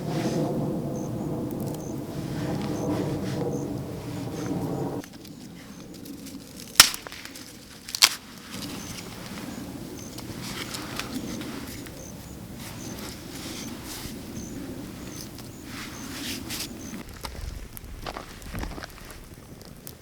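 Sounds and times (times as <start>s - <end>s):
rustling in undergrowth: 1.6s - 19.5s
wood snapping: 5.0s - 8.7s.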